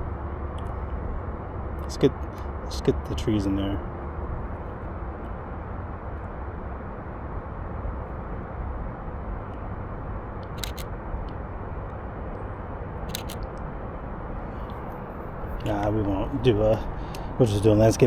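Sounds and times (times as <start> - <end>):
low rumble of background noise: 0.0 - 18.0
camera shutter clicks: 10.4 - 10.9, 13.1 - 13.5.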